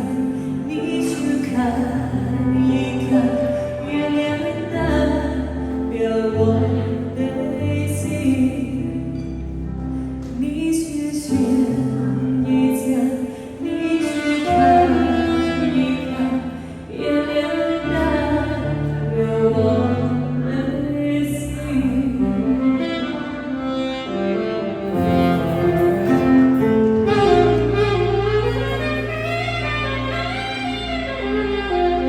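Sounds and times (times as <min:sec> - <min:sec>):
saxophone ballad melody: 0:00.0 - 0:32.0
backing track bass and strings: 0:14.4 - 0:32.0.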